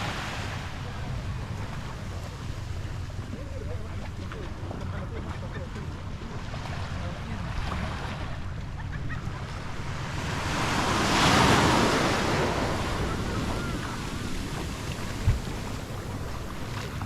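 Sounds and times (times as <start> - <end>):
waves breaking on beach: 0.0 - 17.0
wind buffeting microphone: 8.4 - 17.0.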